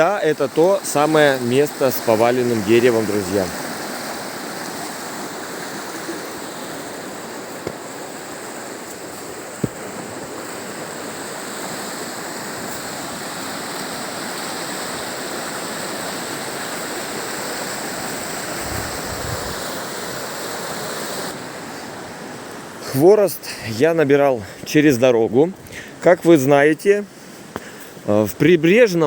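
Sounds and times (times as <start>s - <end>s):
river rushing over rocks: 0.0s - 22.1s.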